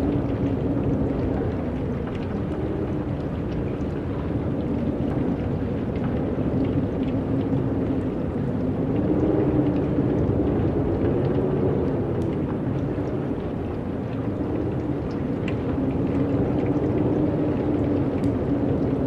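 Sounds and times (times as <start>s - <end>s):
steady wind: 0.0s - 19.0s.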